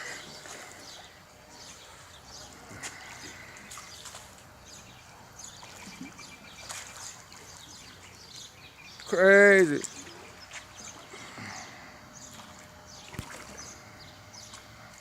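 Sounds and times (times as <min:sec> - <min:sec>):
pool water lapping: 0:00.0 - 0:15.0
bird chirps: 0:03.2 - 0:09.2.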